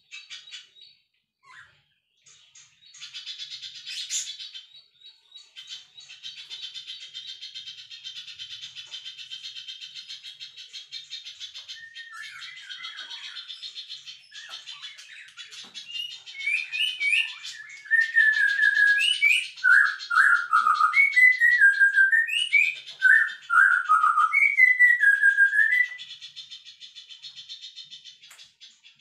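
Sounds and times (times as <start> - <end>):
songbird whistled phrases: 11.6 - 26.1.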